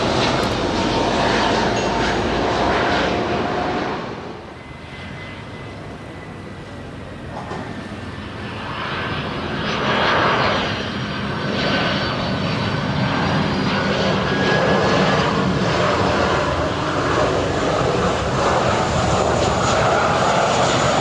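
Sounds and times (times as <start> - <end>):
jet engines whining: 0.0 - 21.0.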